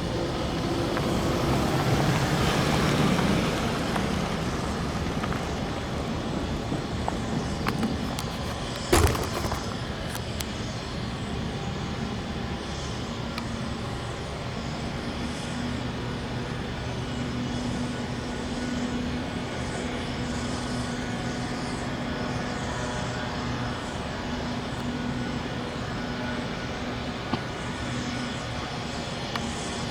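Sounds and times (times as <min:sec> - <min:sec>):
sharp knock: 0:07.7 - 0:09.8.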